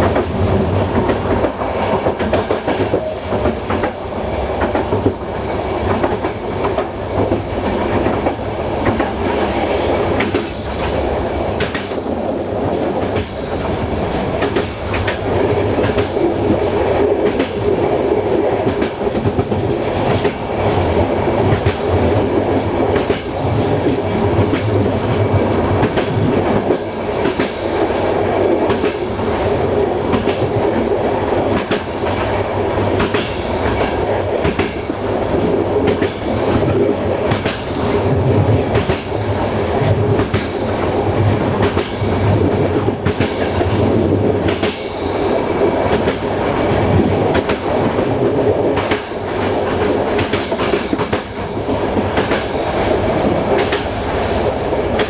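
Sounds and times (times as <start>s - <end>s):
train wheels rolling on rails: 0.0s - 55.0s
wheels clicking over rail joints: 45.6s - 55.0s.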